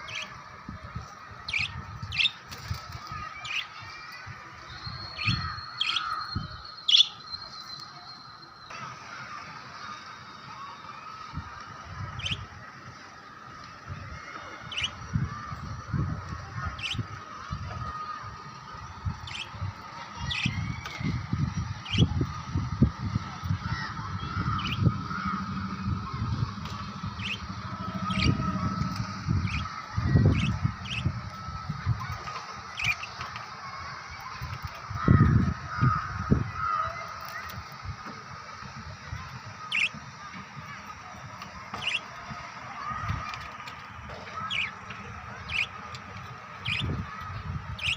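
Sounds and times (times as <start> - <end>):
lovebirds chattering: 1.5 - 3.8, 4.8 - 7.8, 12.1 - 12.4, 14.7 - 15.0, 16.6 - 17.2, 19.2 - 22.4, 23.6 - 33.5, 39.6 - 40.0, 41.7 - 42.1, 44.3 - 45.8, 46.6 - 47.0
low thuds and rumbles: 21.2 - 32.0.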